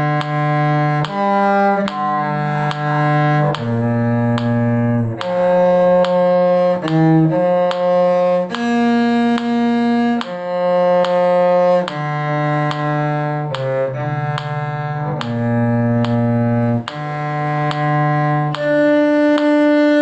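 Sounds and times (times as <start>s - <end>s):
cello melody: 0.0s - 20.0s.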